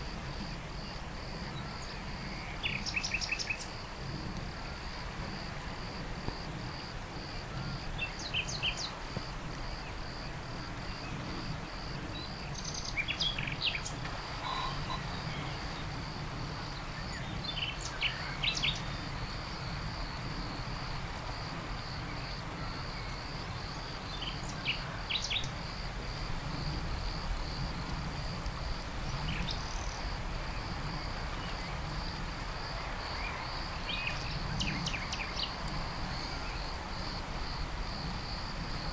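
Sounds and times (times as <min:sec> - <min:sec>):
insect trill: 0:00.0 - 0:38.9
small birds chirping: 0:12.1 - 0:16.0.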